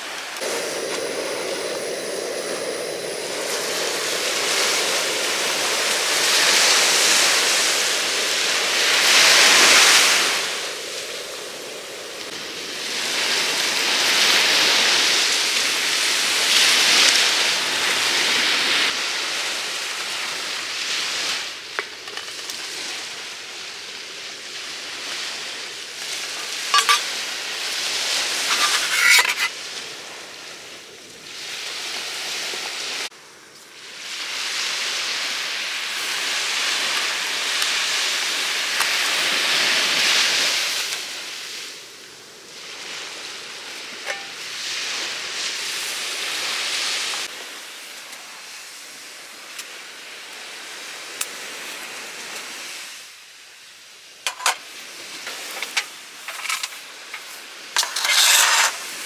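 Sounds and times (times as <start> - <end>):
sea waves washing onto beach: 0.0 - 22.8, 33.8 - 53.1.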